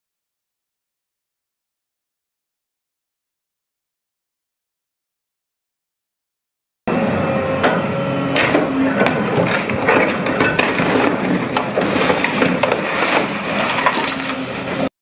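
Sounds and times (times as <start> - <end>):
clacks and knocks: 8.4 - 14.9
scraping: 8.4 - 14.9.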